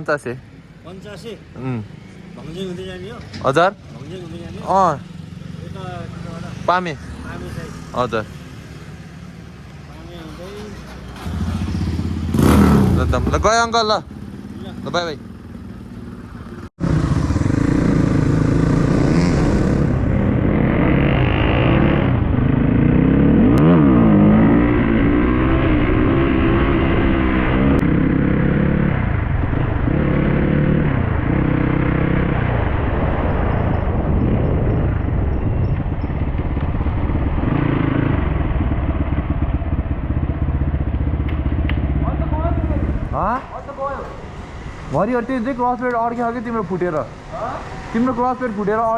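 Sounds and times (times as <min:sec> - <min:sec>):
dirt bike engine revving: 0:10.2 - 0:15.0, 0:16.8 - 0:43.2.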